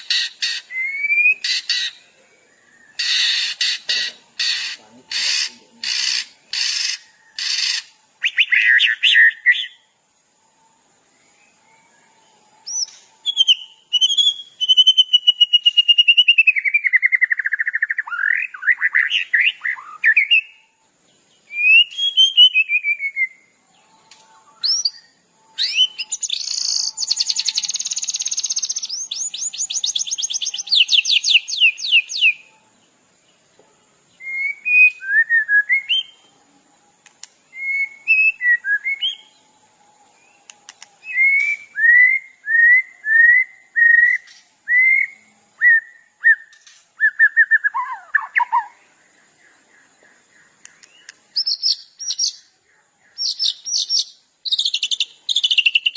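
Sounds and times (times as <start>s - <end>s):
songbird singing: 0.0s - 55.9s.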